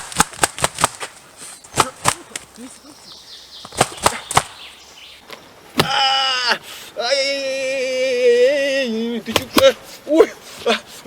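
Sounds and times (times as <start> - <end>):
sharp clicks: 3.6 - 4.6.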